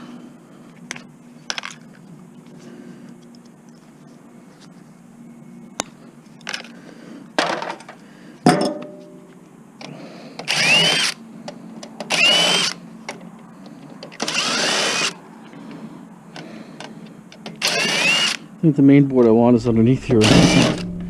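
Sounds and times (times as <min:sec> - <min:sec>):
cordless drill motor whining: 0:10.4 - 0:11.2, 0:12.1 - 0:12.8, 0:14.2 - 0:15.2, 0:17.5 - 0:18.5, 0:20.2 - 0:20.8.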